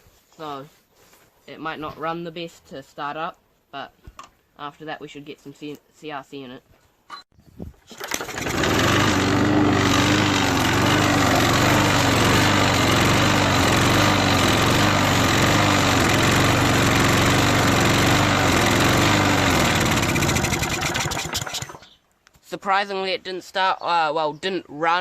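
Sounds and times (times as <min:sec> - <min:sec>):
lawnmower engine wavering: 0:07.9 - 0:22.0.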